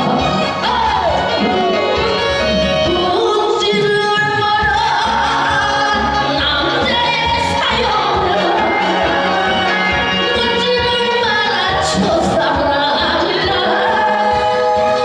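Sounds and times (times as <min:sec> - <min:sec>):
loud instrumental accompaniment: 0:00.0 - 0:15.0
woman singing: 0:00.6 - 0:15.0.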